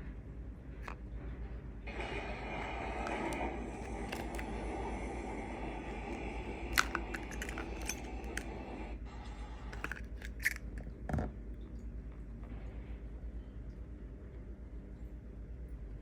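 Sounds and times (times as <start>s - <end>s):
low electrical hum: 0.0s - 16.0s
small parts clicking and tapping: 3.0s - 4.5s, 6.1s - 8.5s, 9.8s - 10.9s.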